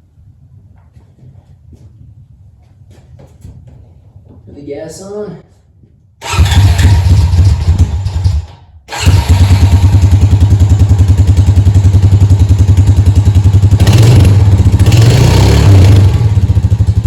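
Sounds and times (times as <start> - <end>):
atv engine running: 6.2 - 17.0
engine revving: 6.2 - 17.0.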